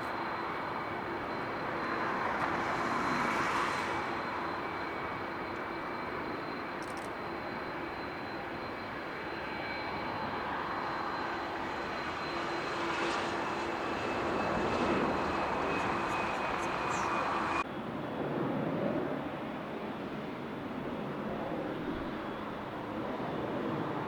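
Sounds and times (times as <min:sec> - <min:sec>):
jet airliner engines running: 0:00.0 - 0:24.0.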